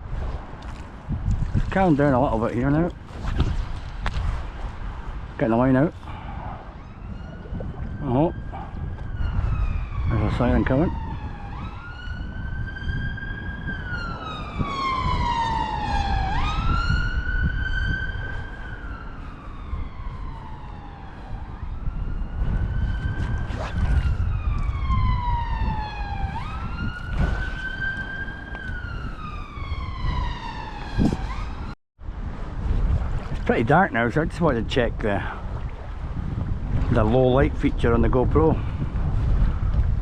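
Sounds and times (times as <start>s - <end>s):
wind rumble on microphone: 0.0s - 40.0s
emergency vehicle siren wailing: 6.0s - 31.8s.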